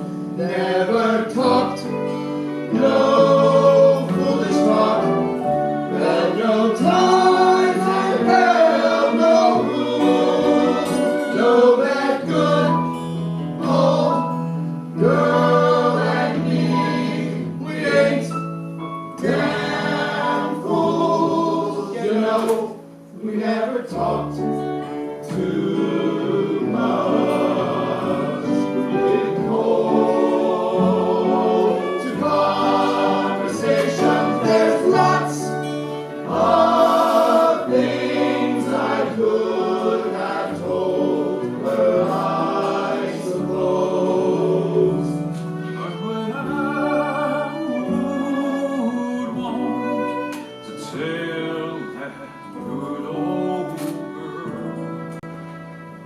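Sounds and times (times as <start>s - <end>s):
choir singing in harmony: 0.0s - 56.0s
instrumental accompaniment: 0.0s - 56.0s.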